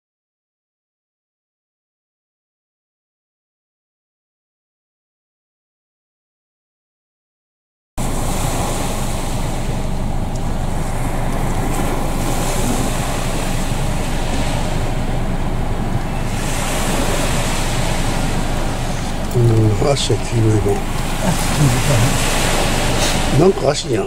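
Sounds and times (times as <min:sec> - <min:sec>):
sea surf washing: 0:08.0 - 0:24.0
wind buffeting microphone: 0:08.0 - 0:24.0.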